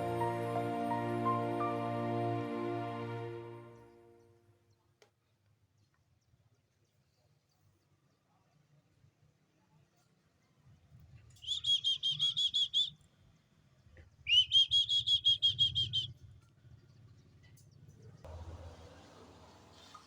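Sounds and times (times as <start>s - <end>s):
bird chirping: 11.4s - 13.0s, 14.1s - 18.2s.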